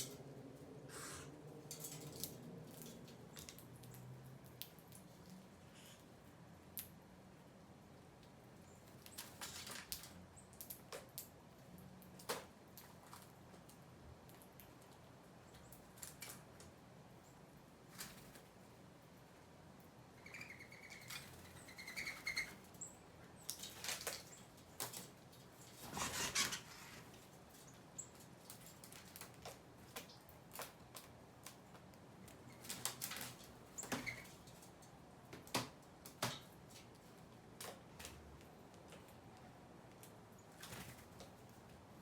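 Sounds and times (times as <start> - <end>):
small birds chirping: 8.4 - 11.3, 19.9 - 28.9.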